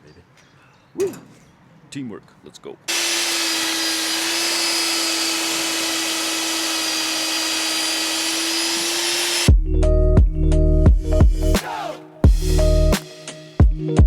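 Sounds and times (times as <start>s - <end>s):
power tool motor humming: 2.9s - 9.5s.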